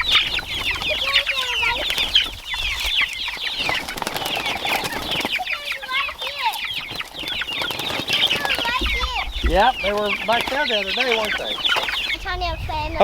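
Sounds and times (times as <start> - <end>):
lower trilling calls: 0.0 - 13.0
young chickens peeping: 0.0 - 13.0.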